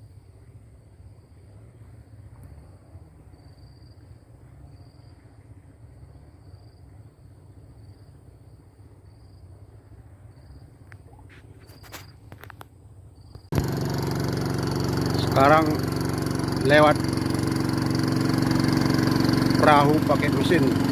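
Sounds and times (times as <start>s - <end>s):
short high insect chirp: 10.3s - 12.3s
thin high whine: 13.5s - 20.9s.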